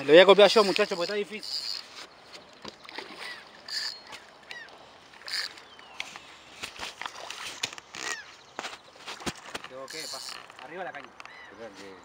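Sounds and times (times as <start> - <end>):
harsh bird calls: 0.1 - 6.4, 9.8 - 12.0.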